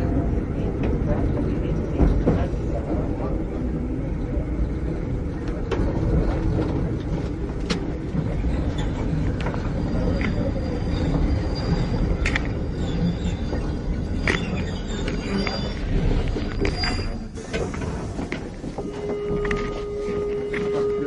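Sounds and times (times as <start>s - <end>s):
train interior rumble: 0.0s - 21.0s
faint high squeal: 8.7s - 17.4s, 18.8s - 21.0s.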